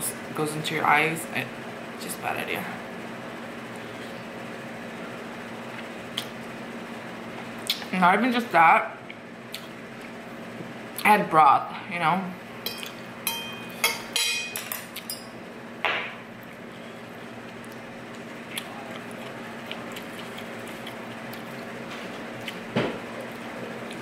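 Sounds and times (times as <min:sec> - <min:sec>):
cutlery clinking against a dish: 0:12.6 - 0:15.3.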